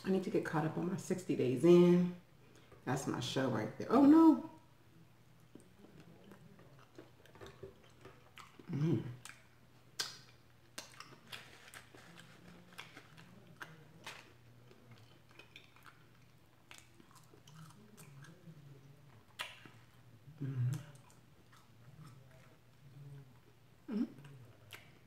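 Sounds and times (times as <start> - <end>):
crunchy chewing of fried food: 5.3 - 25.0.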